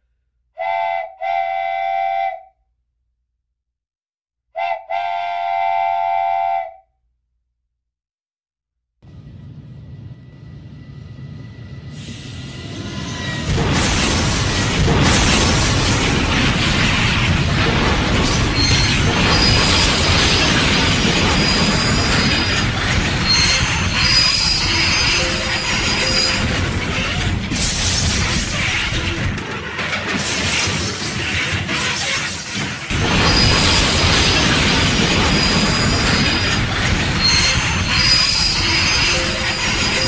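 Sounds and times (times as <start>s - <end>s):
train rumbling on rails: 9.0s - 40.0s
wheels squealing: 18.2s - 40.0s.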